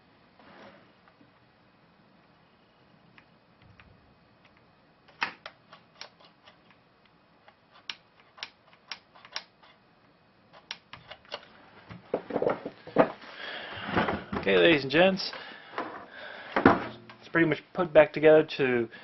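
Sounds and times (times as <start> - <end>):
hard objects clicking and knocking: 10.5 - 13.2.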